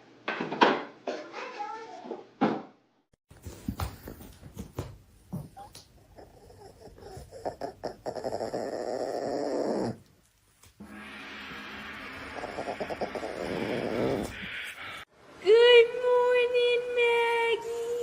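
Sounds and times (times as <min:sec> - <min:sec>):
dog making sounds: 0:03.4 - 0:10.8, 0:12.2 - 0:15.1.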